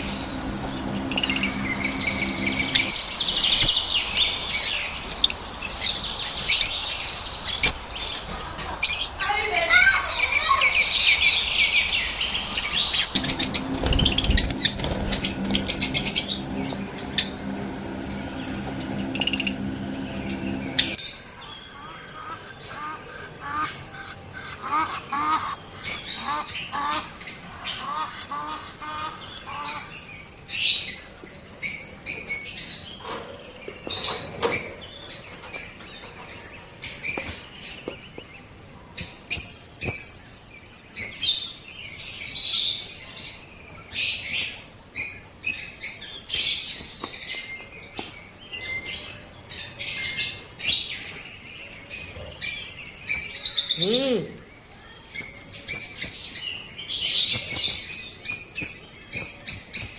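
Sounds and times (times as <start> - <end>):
steady low hum: 0.0 - 3.3, 13.0 - 21.0
lovebirds chirping and calling: 10.2 - 21.0.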